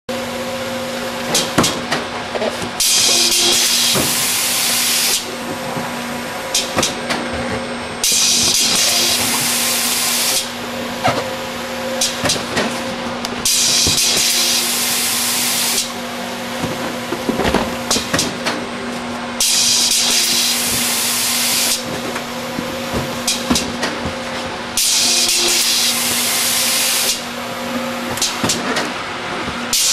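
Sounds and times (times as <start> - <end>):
steady machine hum: 0.1 - 29.9.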